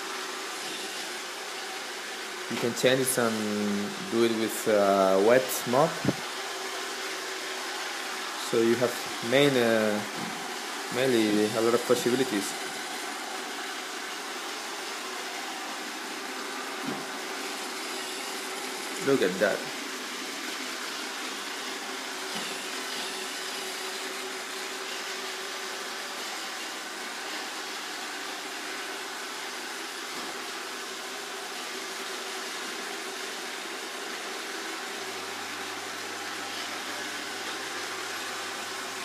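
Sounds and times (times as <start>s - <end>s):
robot vacuum motor whirring: 15.3s - 25.2s.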